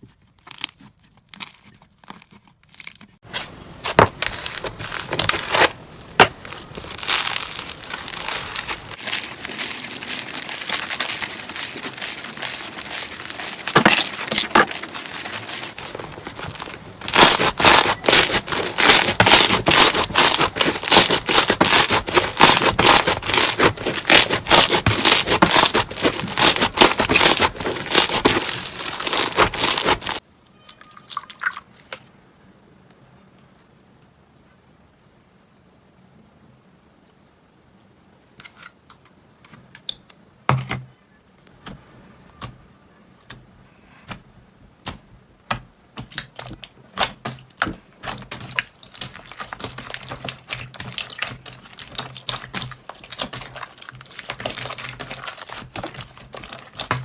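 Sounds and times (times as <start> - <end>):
slime crackling and popping: 3.8 - 30.2, 46.0 - 57.0.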